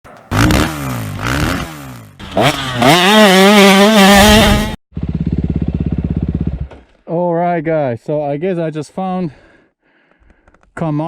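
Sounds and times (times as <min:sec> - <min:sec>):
dirt bike engine revving: 0:00.3 - 0:06.7.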